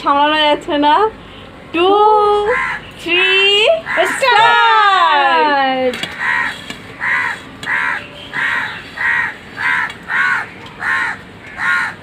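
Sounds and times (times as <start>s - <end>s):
crow cawing: 2.5s - 2.9s, 3.8s - 4.8s, 6.0s - 12.0s.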